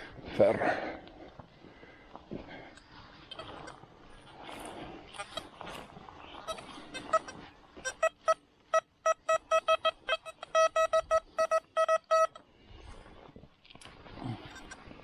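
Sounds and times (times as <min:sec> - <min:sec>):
metal detector beeping: 0:08.0 - 0:12.4.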